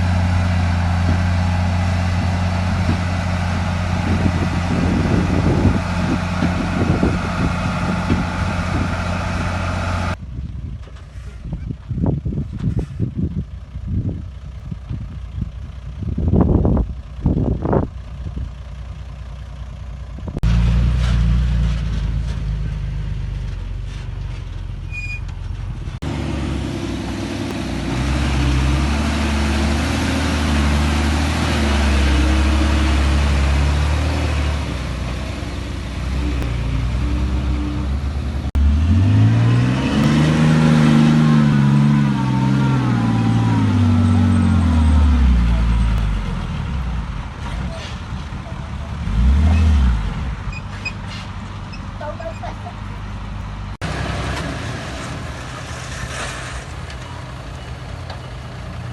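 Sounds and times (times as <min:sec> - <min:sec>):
engine revving: 0:00.0 - 0:10.2, 0:26.0 - 0:48.0, 0:48.7 - 0:50.6
heavy diesel machinery running: 0:00.0 - 0:58.9.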